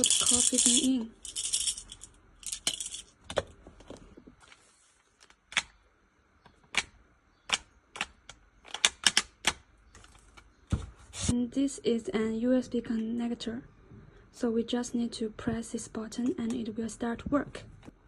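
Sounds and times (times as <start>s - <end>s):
coffee beans rattling: 0.0s - 3.2s.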